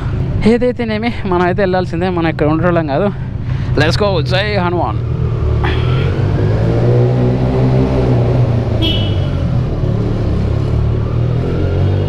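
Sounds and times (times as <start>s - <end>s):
motorcycle engine accelerating: 4.1s - 12.0s
horn toot: 8.8s - 9.5s.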